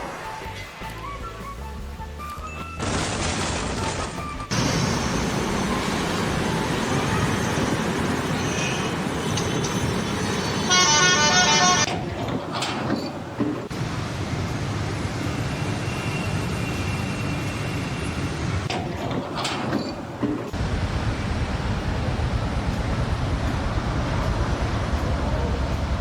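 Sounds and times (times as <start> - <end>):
street traffic noise: 3.7 - 26.0
vehicle horn: 10.5 - 11.9.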